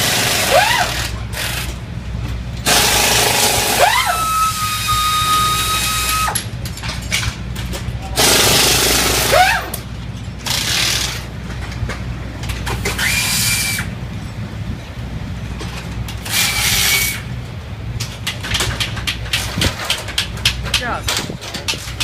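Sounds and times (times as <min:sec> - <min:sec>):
power tool whining: 0:02.7 - 0:06.4
clicks and clanks: 0:06.3 - 0:08.3, 0:09.4 - 0:13.1, 0:15.6 - 0:22.0.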